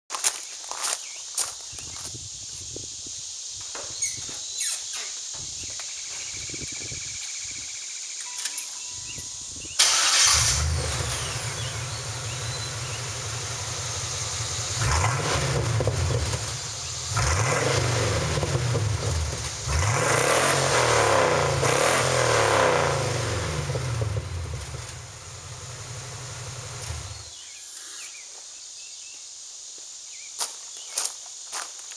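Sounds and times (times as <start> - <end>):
car engine idling and revving: 9.8 - 27.3.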